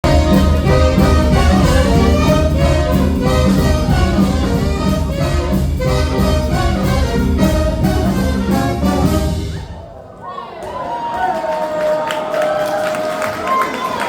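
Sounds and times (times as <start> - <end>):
jazz band playing: 0.0 - 9.8.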